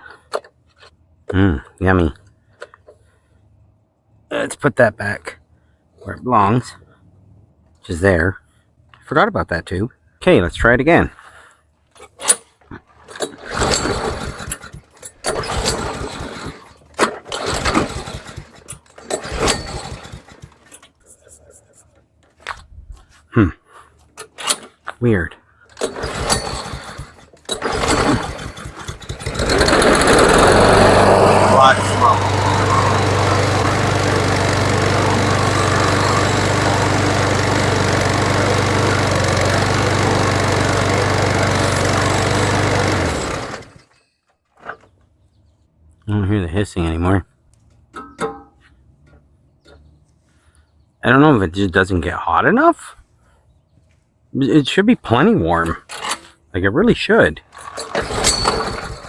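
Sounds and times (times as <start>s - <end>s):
mower engine pull-start cranking: 0.0s - 1.0s, 11.9s - 22.5s, 23.8s - 25.0s, 25.6s - 45.1s, 55.6s - 56.5s, 57.4s - 59.0s.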